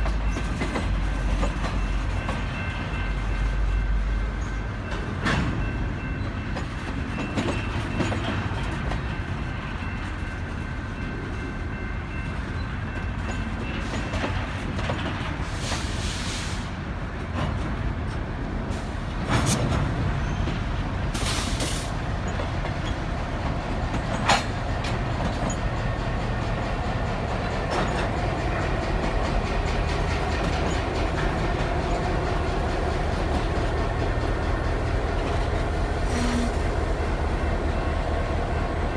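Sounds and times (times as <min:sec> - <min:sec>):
locomotive engine rumble: 0:16.3 - 0:38.9.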